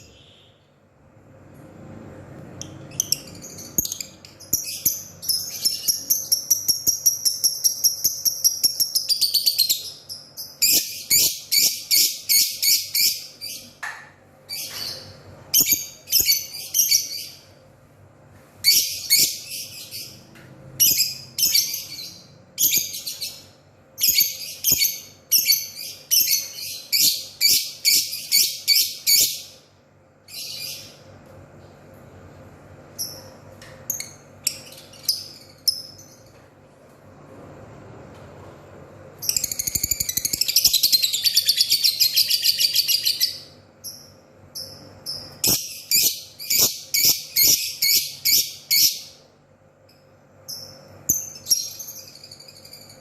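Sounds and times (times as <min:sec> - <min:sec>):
lovebird trilling and chirping: 0:02.6 - 0:13.7, 0:39.2 - 0:49.2.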